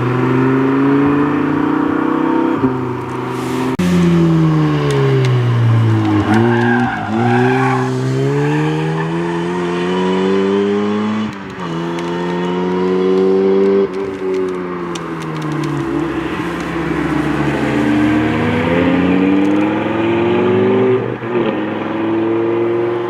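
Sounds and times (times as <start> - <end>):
car engine revving: 0.0 - 23.0
tyre squeal: 6.1 - 10.3.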